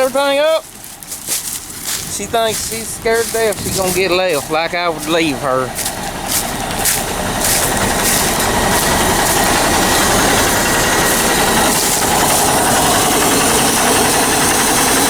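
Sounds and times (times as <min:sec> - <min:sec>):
farm vehicle engine running: 0:00.0 - 0:15.0.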